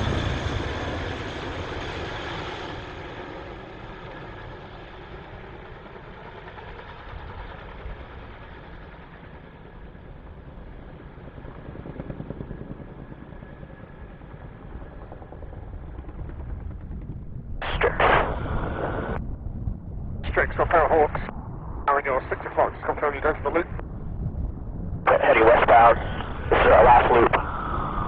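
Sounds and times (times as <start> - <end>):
distant jet engine rumble: 14.1 - 28.0
radio chatter from scanner: 17.6 - 19.2, 20.2 - 21.3, 21.9 - 23.8, 25.1 - 27.4.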